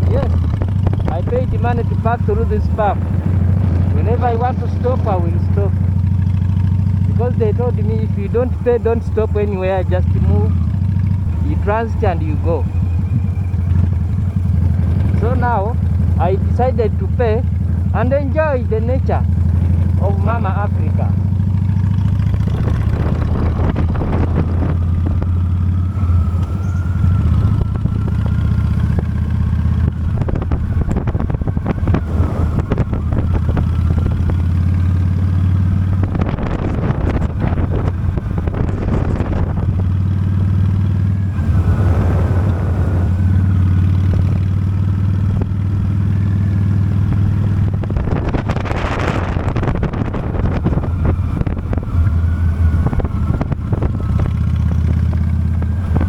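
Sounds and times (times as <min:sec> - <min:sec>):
motorcycle engine hum: 0:00.0 - 0:56.0
wind noise on microphone: 0:22.1 - 0:56.0.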